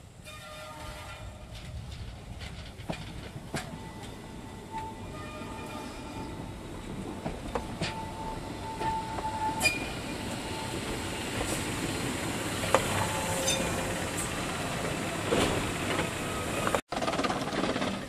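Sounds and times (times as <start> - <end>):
train wheels clicking over rails: 1.4 - 4.9, 6.7 - 18.0
thin wheel squeal: 8.8 - 10.6, 13.0 - 14.0.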